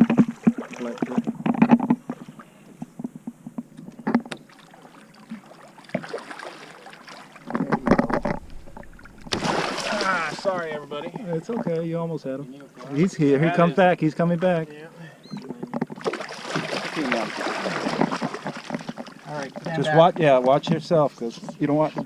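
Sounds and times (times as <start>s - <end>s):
thumps: 0.0s - 4.4s, 7.4s - 10.0s
knocks and clatter on a boat: 0.0s - 4.5s, 7.4s - 9.4s, 15.3s - 22.0s.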